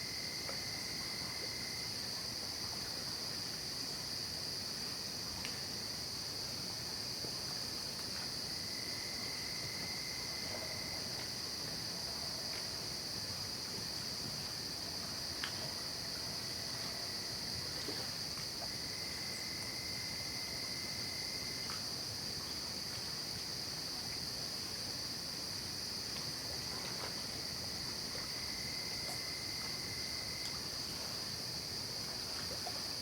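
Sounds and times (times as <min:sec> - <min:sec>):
crickets trilling: 0:00.0 - 0:33.0
lower insect trill: 0:25.3 - 0:33.0.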